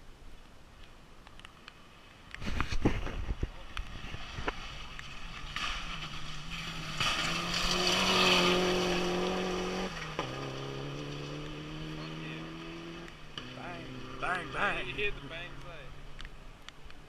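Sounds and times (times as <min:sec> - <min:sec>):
racing car passing at speed: 0:04.2 - 0:16.1.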